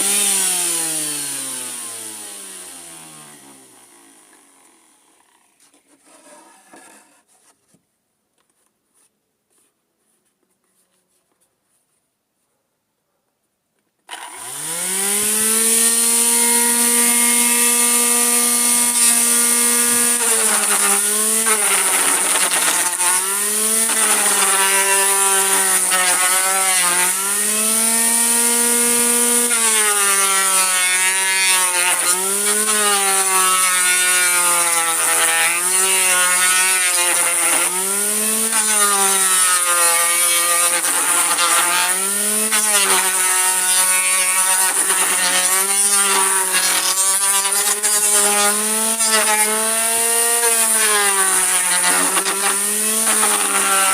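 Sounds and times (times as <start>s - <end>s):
grinder motor whining: 14.1s - 53.9s.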